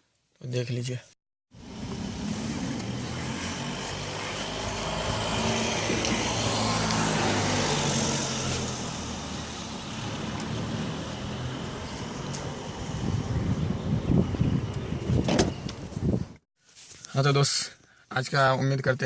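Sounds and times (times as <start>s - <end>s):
engine hum: 1.5s - 16.2s
traffic rush: 1.5s - 16.4s.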